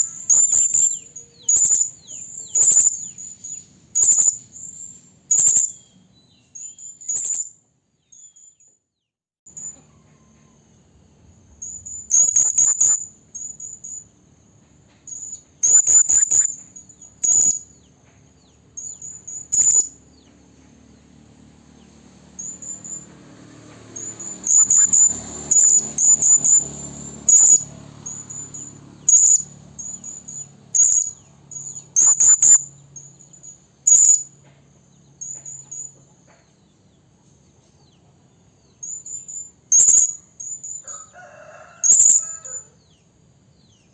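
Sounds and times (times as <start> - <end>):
parrot shrill chirps: 0.0 - 5.8, 6.6 - 7.5, 11.6 - 14.0, 15.1 - 17.7, 18.8 - 20.0, 24.0 - 34.3, 38.8 - 42.7.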